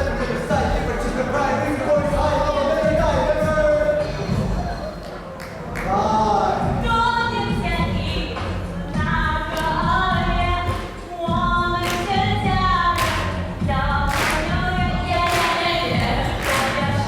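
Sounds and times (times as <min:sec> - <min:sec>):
group of voices singing: 0:05.8 - 0:17.0.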